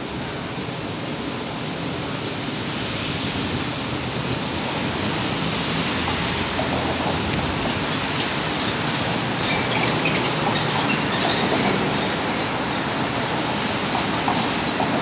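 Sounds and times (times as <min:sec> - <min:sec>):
freight train wheels rumbling: 0:03.4 - 0:15.0.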